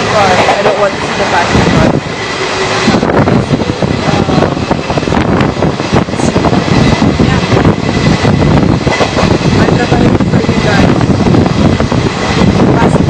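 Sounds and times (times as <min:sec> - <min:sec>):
train roaring at speed: 0:00.0 - 0:13.0
train wheels rattling: 0:00.0 - 0:13.0.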